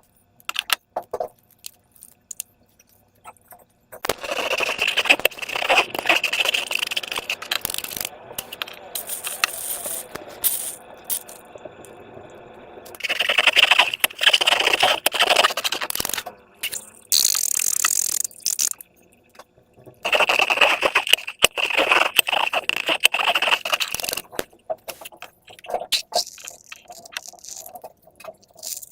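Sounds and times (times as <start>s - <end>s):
slime crackling and popping: 4.0s - 11.4s, 12.9s - 18.9s, 20.0s - 28.9s.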